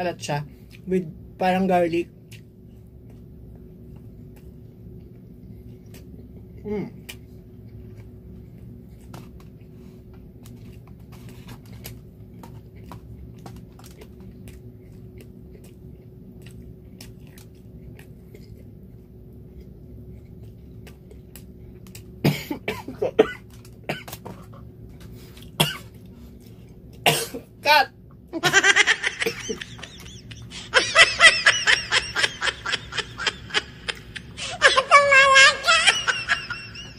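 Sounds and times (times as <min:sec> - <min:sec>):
man chewing food: 0:02.1 - 0:34.6
man coughing: 0:22.2 - 0:24.2, 0:27.1 - 0:27.5.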